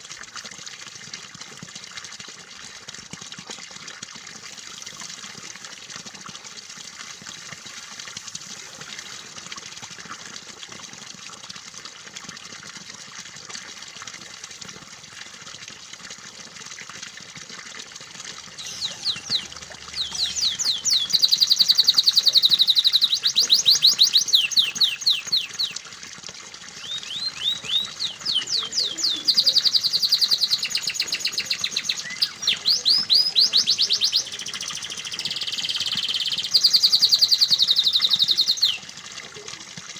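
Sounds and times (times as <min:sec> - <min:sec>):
running water: 0:00.0 - 0:39.9
canary singing trills: 0:18.6 - 0:25.8, 0:26.8 - 0:38.8.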